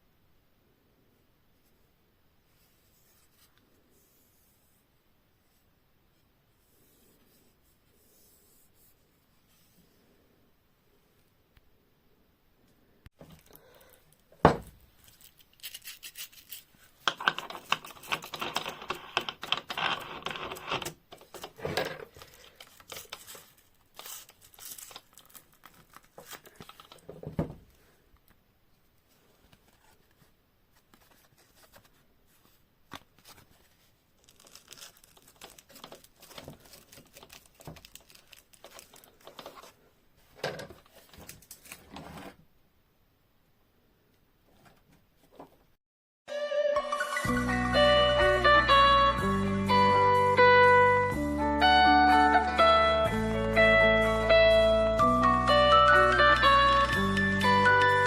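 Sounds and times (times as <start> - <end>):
rough scraping: 15.0 - 24.9.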